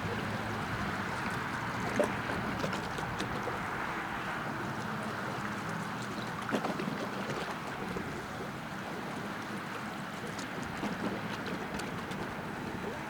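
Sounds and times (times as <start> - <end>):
ship engine rumble: 0.0 - 9.5
water noise: 0.0 - 13.0.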